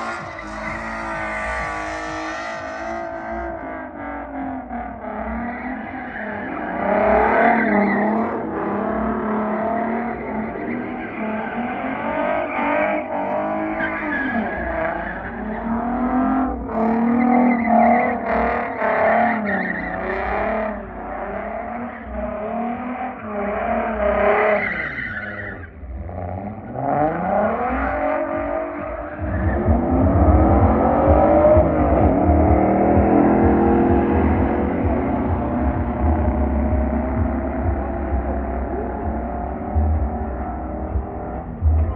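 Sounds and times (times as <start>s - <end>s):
tire squeal: 0.0s - 3.5s, 5.3s - 8.8s, 9.6s - 31.6s
car engine revving hard: 0.0s - 24.7s, 25.4s - 41.9s
heavy low rumble: 29.2s - 41.9s.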